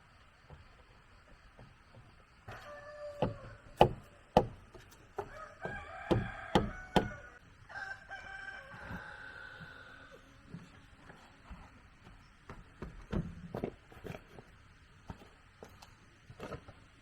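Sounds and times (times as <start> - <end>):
rooster crowing: 2.5 - 4.4, 5.2 - 10.3
sharp knocks: 3.2 - 7.3.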